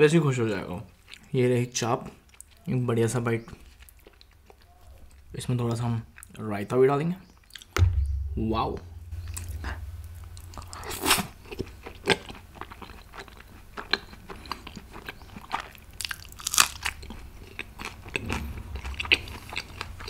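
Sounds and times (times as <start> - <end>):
person chewing food: 12.2 - 18.2.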